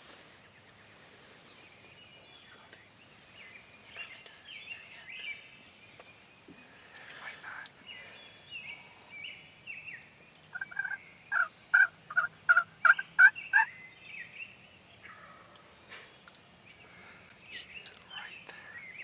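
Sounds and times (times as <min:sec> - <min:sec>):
small birds singing: 0:00.2 - 0:19.0
turkey yelping: 0:10.6 - 0:13.7.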